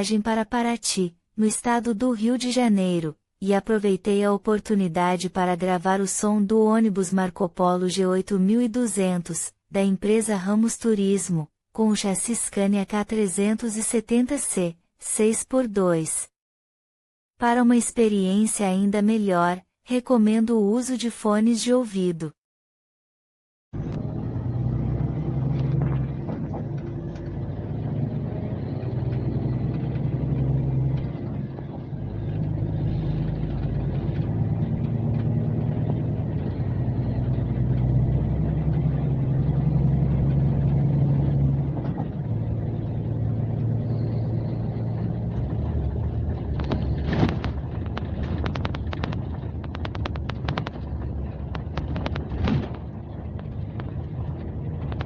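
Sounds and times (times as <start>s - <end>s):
diesel coach engine running: 23.8s - 55.0s
sharp knocks and rattles: 25.0s - 39.4s, 40.1s - 43.8s, 44.8s - 55.0s.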